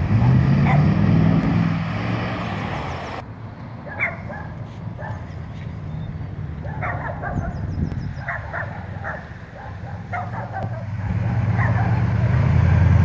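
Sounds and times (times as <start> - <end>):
sports car engine rumble: 0.0 - 13.0
high yapping calls: 3.9 - 12.1.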